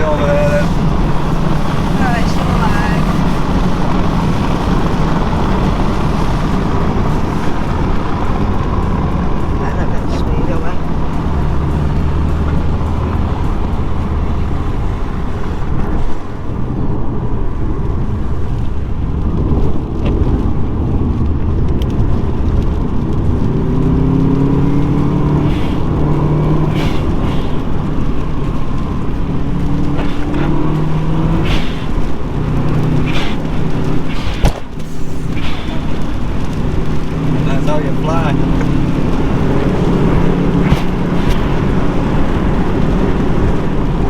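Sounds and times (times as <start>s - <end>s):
car engine revving: 0.0s - 44.0s
tyre and road noise: 0.0s - 44.0s.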